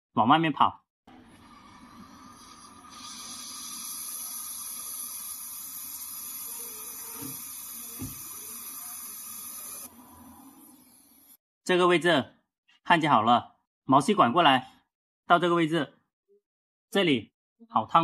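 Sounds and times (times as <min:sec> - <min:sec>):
brazing torch flame hissing: 0:01.3 - 0:11.4.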